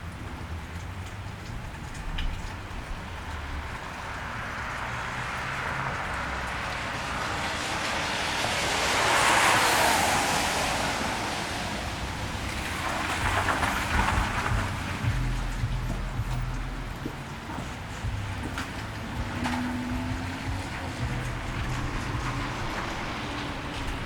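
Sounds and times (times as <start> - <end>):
steady rain: 0.0 - 24.0
vehicle rumbling: 0.0 - 24.0
tyres hissing through water: 3.5 - 24.0.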